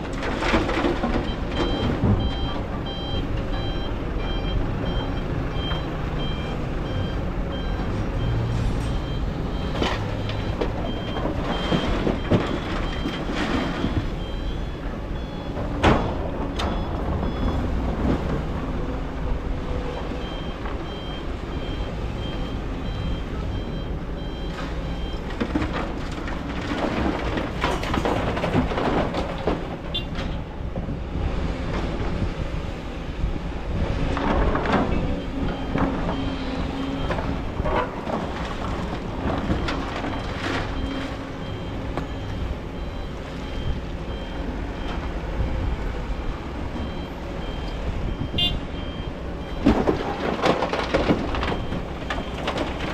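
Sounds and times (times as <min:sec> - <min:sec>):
back-up alarm beeping: 0:01.2 - 0:17.7, 0:39.6 - 0:45.6, 0:46.8 - 0:49.7.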